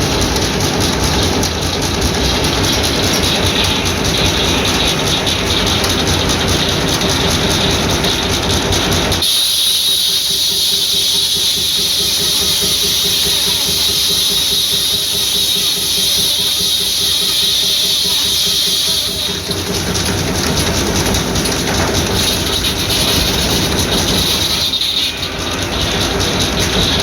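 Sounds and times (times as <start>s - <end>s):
regular engine beat: 0.0s - 27.0s
saw blade whining through log: 9.2s - 25.6s.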